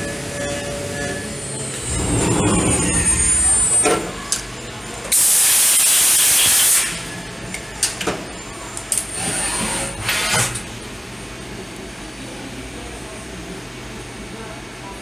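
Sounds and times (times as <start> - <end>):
brief high whine: 1.7 - 4.5.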